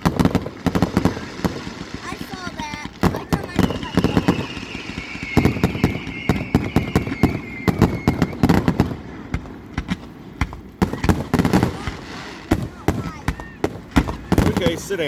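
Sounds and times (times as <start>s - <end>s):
fireworks bangs and crackles: 0.0s - 15.0s
whistle sliding down in pitch: 3.6s - 8.4s.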